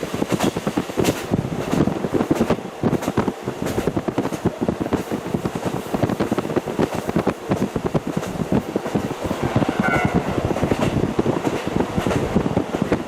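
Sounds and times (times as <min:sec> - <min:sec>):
diesel railcar running: 0:00.0 - 0:13.0
wind rushing through window: 0:00.0 - 0:13.0.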